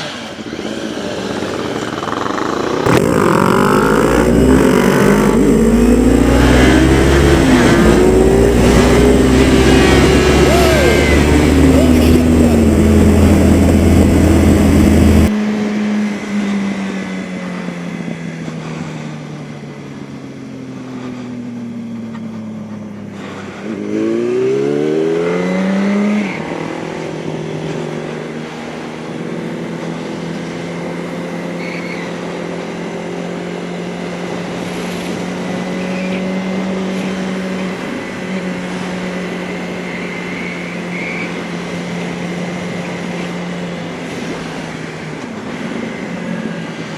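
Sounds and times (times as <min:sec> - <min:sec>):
motorcycle engine: 0:00.0 - 0:46.9
heavy wind rush: 0:00.2 - 0:15.3.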